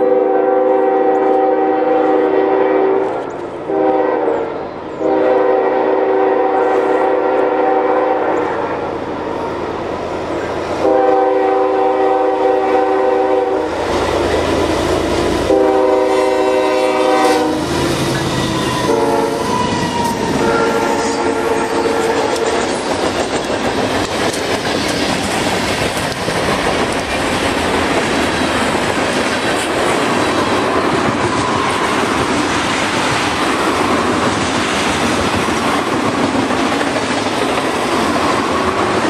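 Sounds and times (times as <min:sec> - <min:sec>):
locomotive air horn blasts: 0:00.0 - 0:08.8, 0:10.8 - 0:13.8, 0:15.4 - 0:22.7
locomotives passing with loud rush: 0:00.0 - 0:39.0
freight cars clattering on rails: 0:22.0 - 0:39.0.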